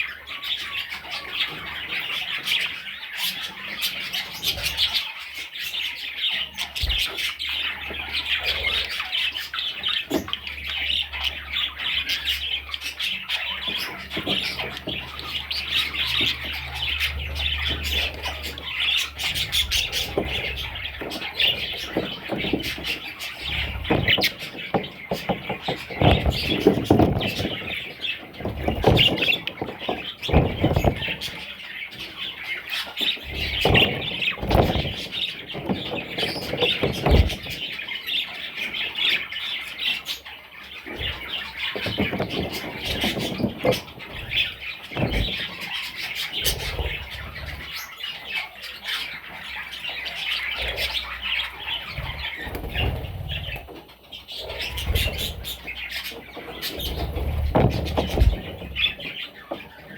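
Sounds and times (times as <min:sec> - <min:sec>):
budgerigars chirping and squawking: 0:00.0 - 0:59.9
low knocks and rustles: 0:13.6 - 0:38.2, 0:40.8 - 0:47.7, 0:54.4 - 0:59.9.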